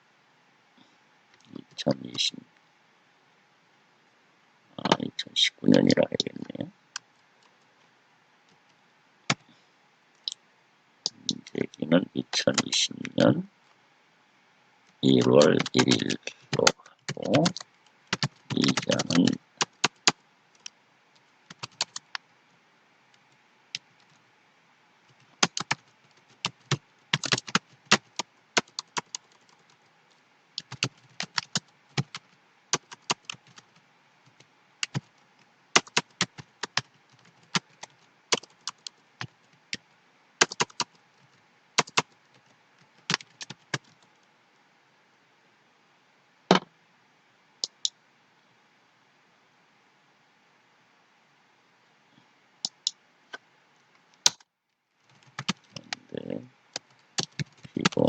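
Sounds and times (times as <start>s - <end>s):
typing on computer keyboard: 15.2s - 20.8s, 21.5s - 22.2s, 25.2s - 29.9s, 30.6s - 35.2s, 35.8s - 39.8s, 40.4s - 44.2s, 55.0s - 56.0s, 56.8s - 58.0s.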